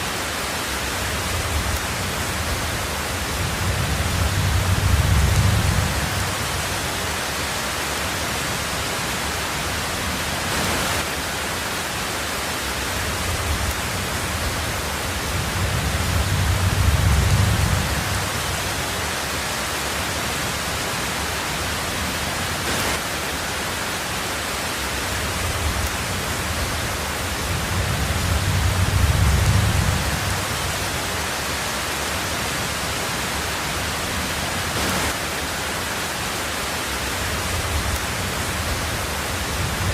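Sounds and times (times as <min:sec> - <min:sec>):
heavy rain on a tin roof: 0:00.0 - 0:39.9
rumble of thunder: 0:01.1 - 0:07.0, 0:13.2 - 0:18.9, 0:25.3 - 0:31.1, 0:37.4 - 0:39.9.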